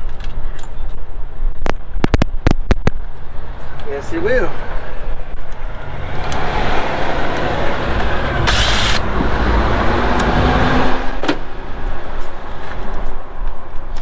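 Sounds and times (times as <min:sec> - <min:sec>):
heavy vehicle traffic rumble: 0:03.0 - 0:14.0
loud air hiss: 0:07.6 - 0:10.8.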